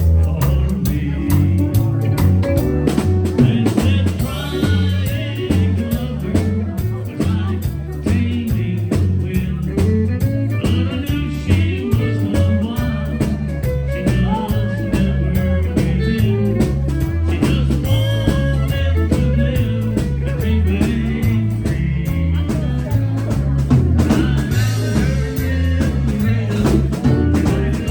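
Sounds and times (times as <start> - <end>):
drums: 0.0 - 27.9
electric bass line: 0.0 - 27.9
electric lead guitar: 0.0 - 27.9
fiddle: 9.2 - 27.9.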